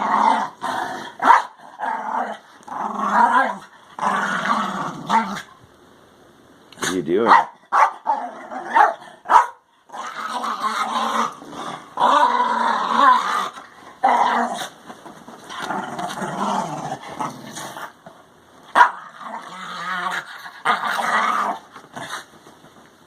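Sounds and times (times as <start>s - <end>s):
puppy play-growling: 0.0s - 5.6s, 6.7s - 22.9s
puppy barking: 1.2s - 1.6s, 7.2s - 9.6s, 18.7s - 19.0s.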